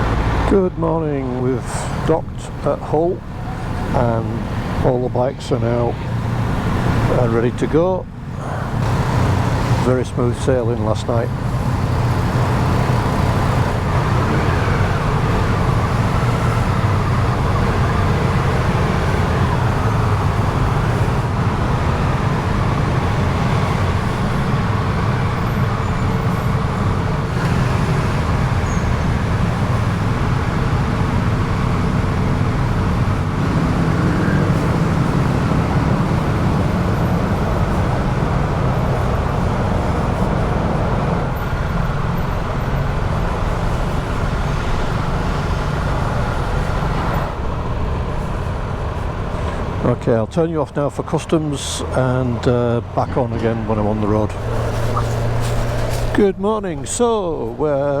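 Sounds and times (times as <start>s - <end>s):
road noise hiss: 0.0s - 58.0s
motorcycle engine drone: 8.1s - 49.9s.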